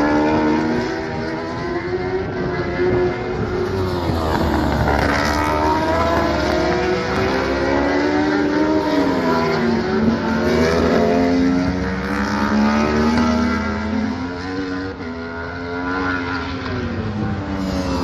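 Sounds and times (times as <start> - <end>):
racing motorcycle engines revving: 0.0 - 18.0.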